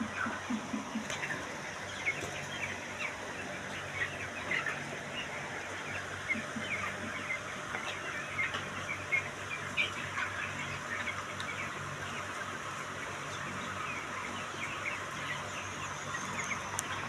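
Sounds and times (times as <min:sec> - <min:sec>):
chickens calling: 0:00.0 - 0:17.0.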